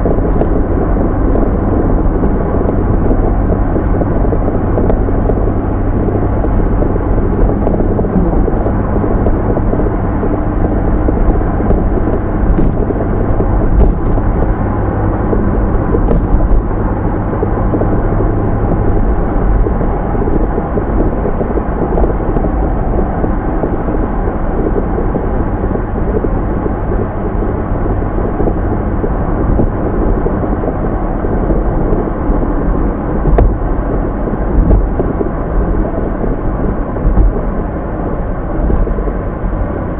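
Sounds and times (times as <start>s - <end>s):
car driving muffled rumble: 0.0s - 39.9s.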